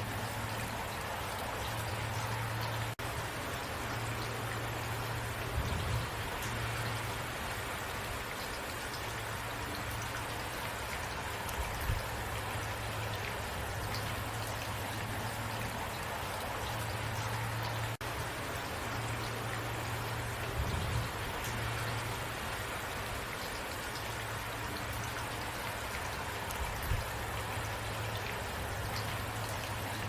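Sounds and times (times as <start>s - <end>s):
low steady rumble: 0.0s - 8.2s, 11.5s - 23.2s
rain pattering: 0.0s - 30.0s.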